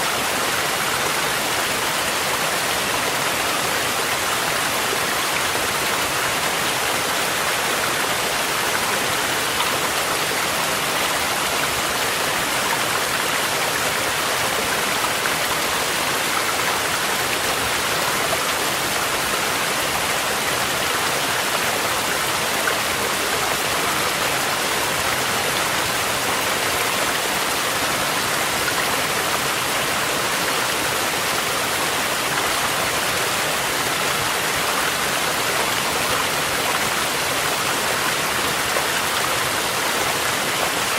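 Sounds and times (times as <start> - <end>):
stream rushing water: 0.0 - 40.9.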